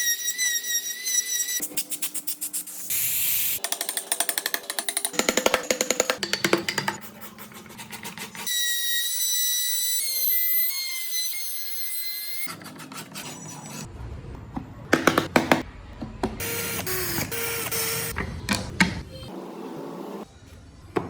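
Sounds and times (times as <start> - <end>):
workshop clatter: 12.5 - 19.3.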